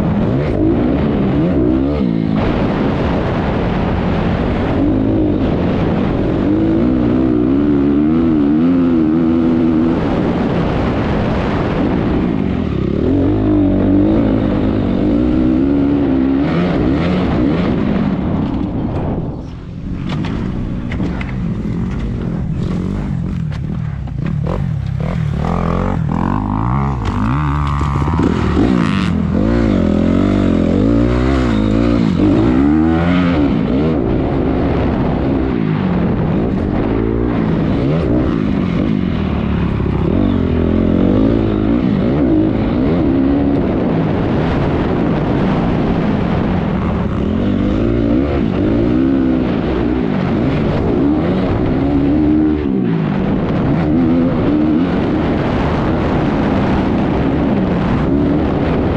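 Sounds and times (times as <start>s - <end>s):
motocross bike engine revving: 20.0s - 35.9s.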